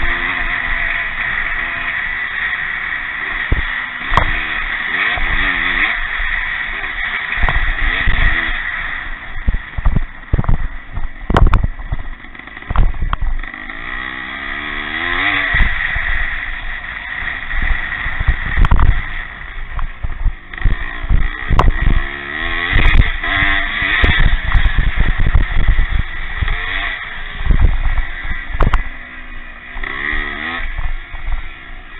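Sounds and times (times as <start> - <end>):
motorcycle engines revving: 0.0 - 31.9
low thuds: 9.2 - 13.4, 17.4 - 22.1, 23.9 - 29.0.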